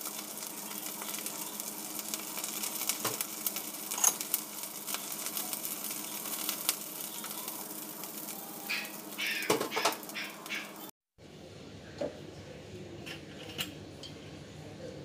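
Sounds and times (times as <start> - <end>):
prawns sizzling in a wok: 0.0 - 10.9
tongs clattering in a pan: 0.7 - 7.8, 8.6 - 10.6.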